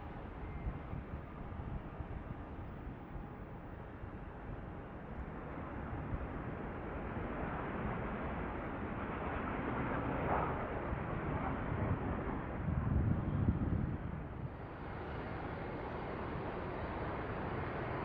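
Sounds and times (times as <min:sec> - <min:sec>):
jet engines rushing: 0:14.4 - 0:18.0.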